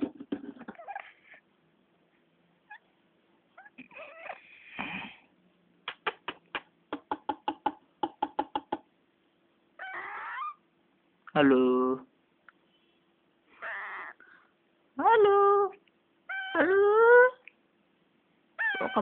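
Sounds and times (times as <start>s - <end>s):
parrot drawn-out call: 18.6s - 19.0s.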